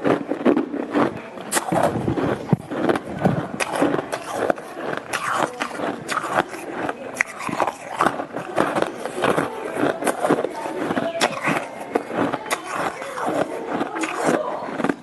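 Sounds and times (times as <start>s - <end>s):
person crunching shaved ice: 0.0s - 15.0s.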